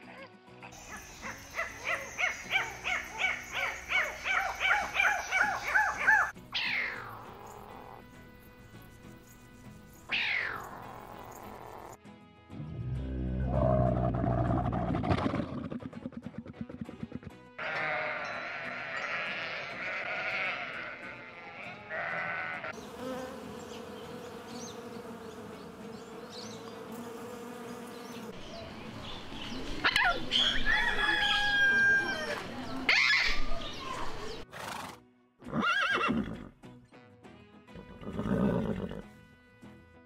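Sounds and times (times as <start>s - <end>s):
sheep bleating: 17.6s - 22.8s.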